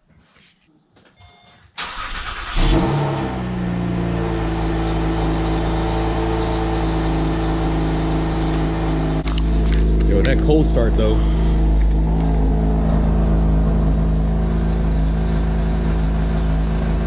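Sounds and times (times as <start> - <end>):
starter motor cranking: 1.8 - 2.9
car engine starting and idling: 1.8 - 17.0.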